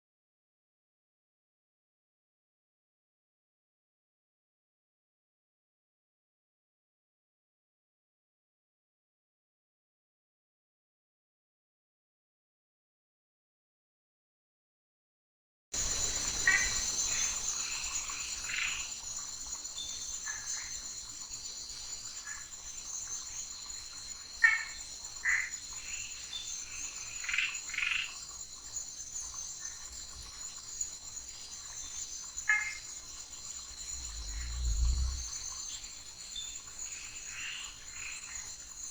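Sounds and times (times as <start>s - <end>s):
frogs calling: 15.8s - 35.7s, 36.4s - 38.8s
insects trilling: 15.8s - 38.9s.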